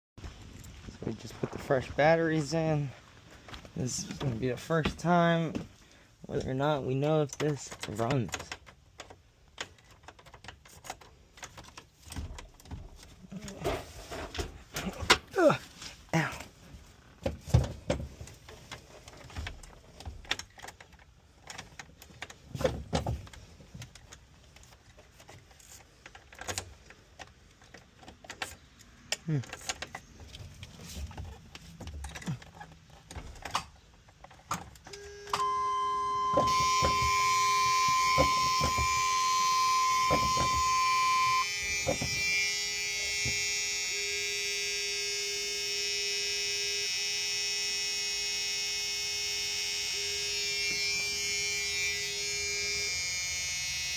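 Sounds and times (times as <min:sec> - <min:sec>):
high warning tone: 0:34.9 - 0:53.9
lower steady tone: 0:34.9 - 0:53.9
steady electric buzz: 0:35.0 - 0:53.9
knocks and clicks: 0:36.2 - 0:39.2, 0:40.0 - 0:40.8.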